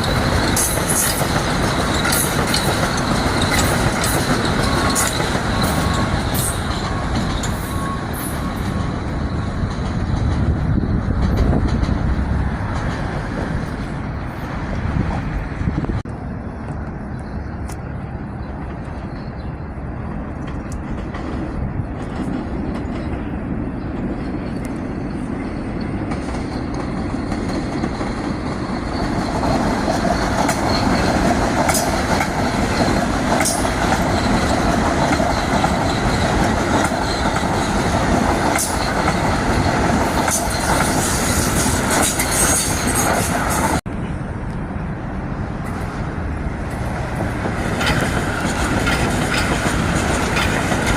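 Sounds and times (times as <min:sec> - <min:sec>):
high wheel squeals: 0:00.0 - 0:09.6, 0:25.4 - 0:43.8
wheels clattering over rail joints: 0:00.0 - 0:14.0, 0:46.6 - 0:50.9
train rumbling past: 0:00.0 - 0:50.9.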